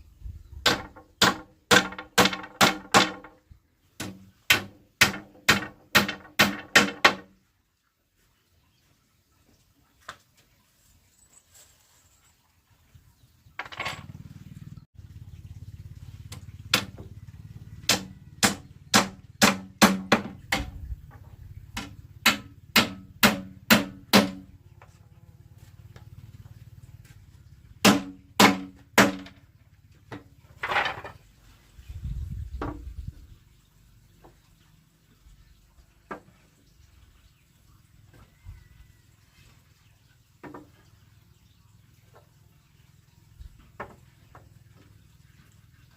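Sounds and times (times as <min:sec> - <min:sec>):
sharp blows striking wood: 0:00.6 - 0:03.4, 0:04.0 - 0:07.4, 0:16.7 - 0:17.1, 0:17.8 - 0:20.8, 0:21.7 - 0:24.5, 0:27.8 - 0:29.4.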